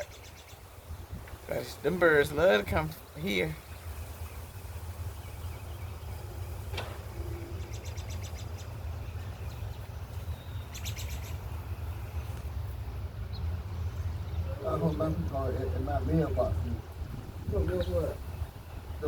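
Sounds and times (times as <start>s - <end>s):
low steady rumble: 0.0s - 19.0s
high bird chirps: 3.2s - 12.6s.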